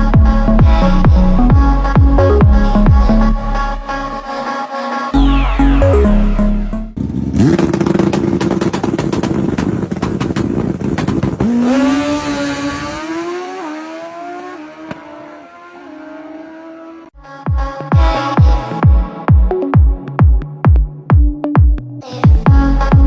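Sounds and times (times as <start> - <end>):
electronic music: 0.0 - 7.6, 17.2 - 23.0
sport motorcycle engine revving: 6.8 - 17.2.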